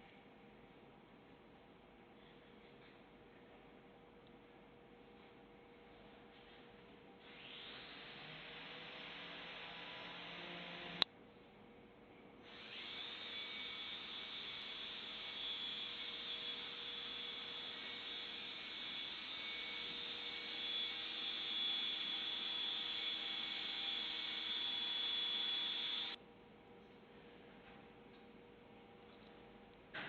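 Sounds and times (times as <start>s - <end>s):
power tool motor whining: 7.3s - 11.0s, 18.3s - 26.2s.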